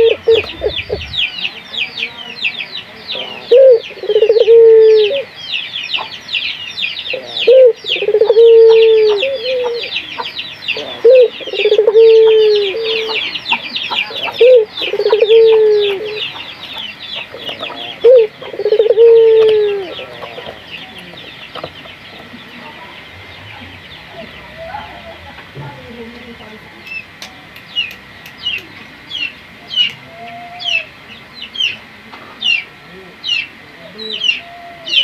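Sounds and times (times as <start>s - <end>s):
fast high chirping: 0.0s - 1.5s
dove cooing: 0.0s - 26.1s, 33.7s - 35.0s.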